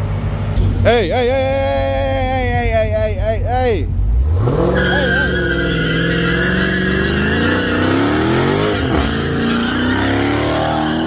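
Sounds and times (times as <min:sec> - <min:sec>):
car engine accelerating hard: 0:03.8 - 0:11.0.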